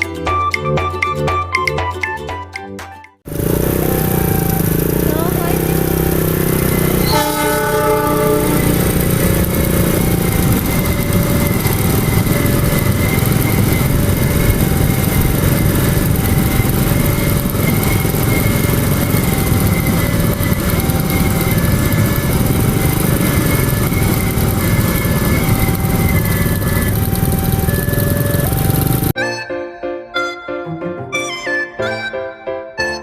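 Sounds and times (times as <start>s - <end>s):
freight train rumbling: 3.3s - 29.2s
two-tone crossing alarm: 4.1s - 29.2s.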